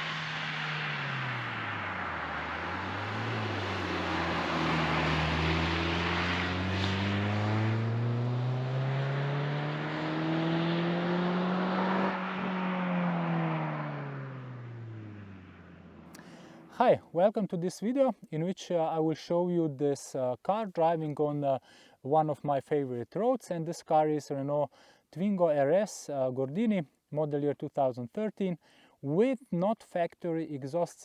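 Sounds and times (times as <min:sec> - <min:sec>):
car engine pulling under load: 0:00.0 - 0:16.5.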